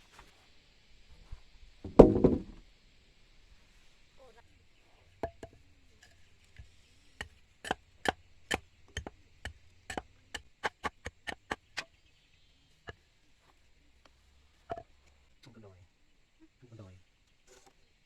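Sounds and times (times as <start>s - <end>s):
tool striking wood: 1.8s - 2.6s, 5.2s - 5.6s, 6.6s - 11.9s.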